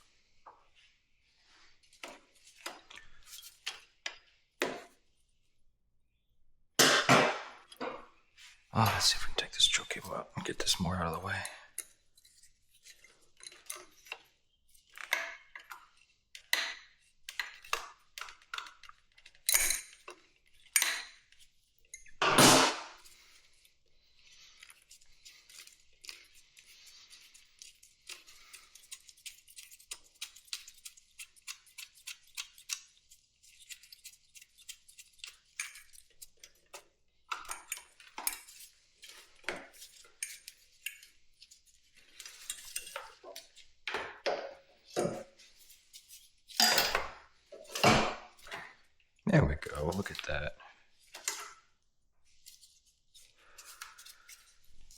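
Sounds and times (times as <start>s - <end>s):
metal tools clinking: 46.5s - 47.1s.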